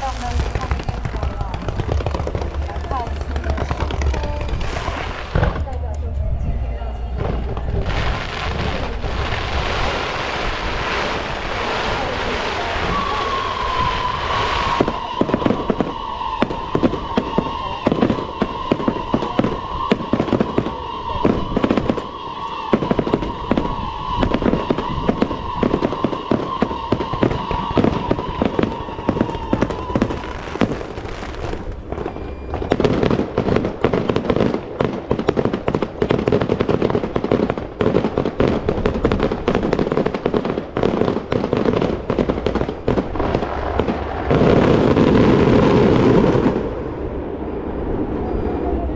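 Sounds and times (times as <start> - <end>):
fireworks hissing: 0.0 - 5.8, 7.2 - 32.8
fireworks bangs and crackles: 0.0 - 48.9
high firework whistle: 7.0 - 34.2, 44.6 - 48.9.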